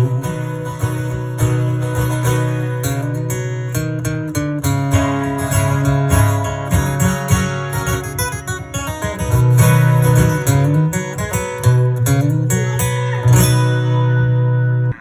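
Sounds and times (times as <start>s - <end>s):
strummed acoustic guitar: 0.0s - 15.0s
low steady bass: 11.6s - 15.0s.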